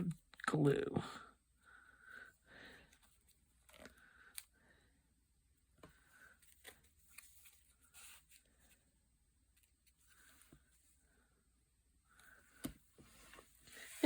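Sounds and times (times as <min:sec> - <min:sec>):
paper rustling: 0:06.4 - 0:08.9.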